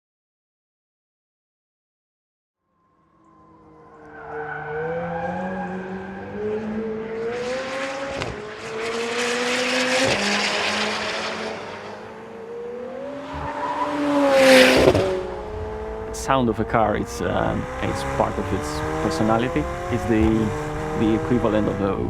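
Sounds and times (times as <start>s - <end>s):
sports car engine revving: 3.2s - 22.0s
tyre squeal: 4.0s - 6.4s, 13.3s - 14.3s.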